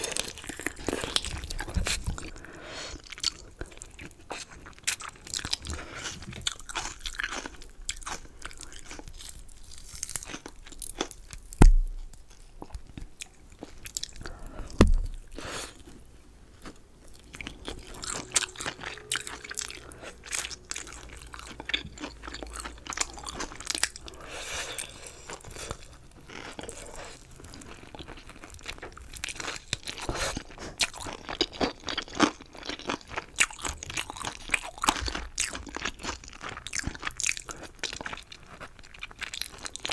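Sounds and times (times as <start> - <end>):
chewing and crunching food: 0.0 - 39.9
dull thumps: 11.6 - 12.2, 14.7 - 15.3.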